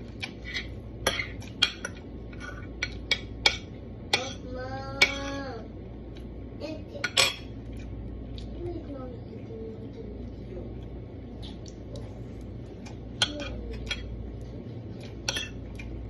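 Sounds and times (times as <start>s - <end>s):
cutlery clinking on a plate: 15.2s - 15.6s.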